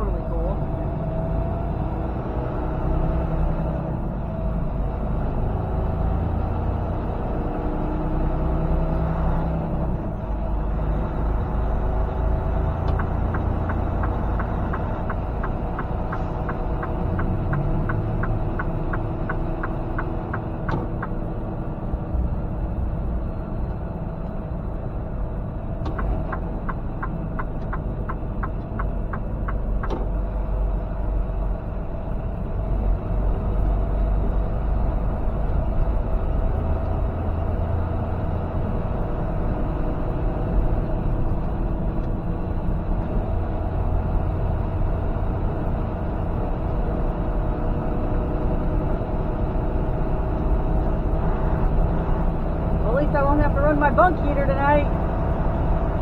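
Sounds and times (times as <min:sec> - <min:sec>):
truck engine and road noise: 0:00.0 - 0:56.0
turn signal ticking: 0:11.1 - 0:21.7, 0:25.6 - 0:31.5, 0:50.3 - 0:56.0.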